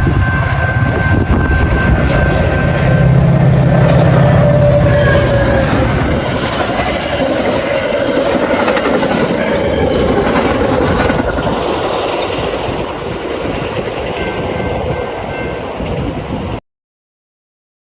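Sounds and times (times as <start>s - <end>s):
train wheels clattering over rail joints: 2.5s - 15.0s.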